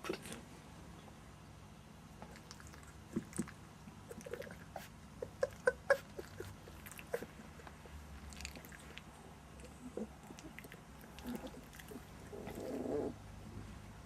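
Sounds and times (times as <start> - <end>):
faint steady hum: 0.0 - 14.0
puppies squeaking and yipping: 4.8 - 7.3.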